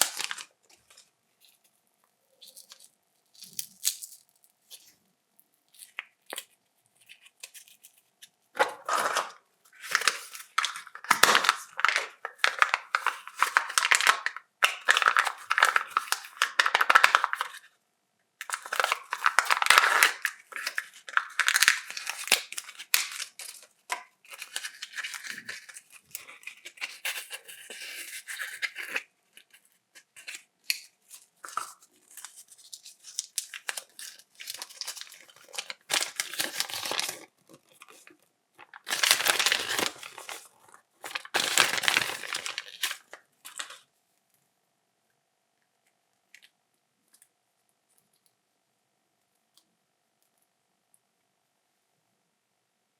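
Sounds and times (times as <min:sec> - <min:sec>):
wrappers torn and crinkled: 0:00.0 - 0:00.6, 0:02.4 - 0:04.9, 0:08.6 - 0:17.6, 0:18.4 - 0:29.0, 0:30.2 - 0:43.8.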